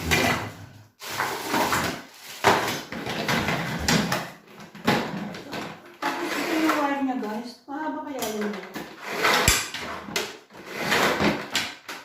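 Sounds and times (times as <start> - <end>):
plastic parts clattering: 0.0 - 7.4.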